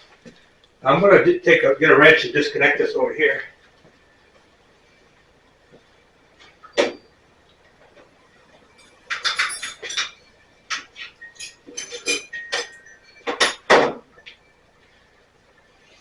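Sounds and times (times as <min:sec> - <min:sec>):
metal tools clinking: 0:08.7 - 0:13.8.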